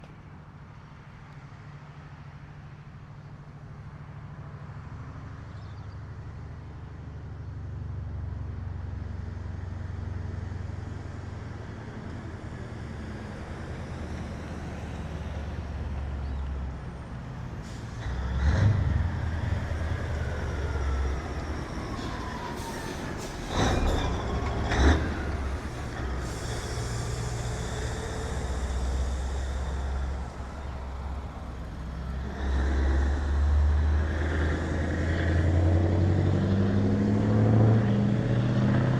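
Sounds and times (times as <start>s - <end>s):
diesel trucks driving past: 0.0s - 38.9s
air brake hisses: 22.1s - 23.9s, 25.2s - 31.4s.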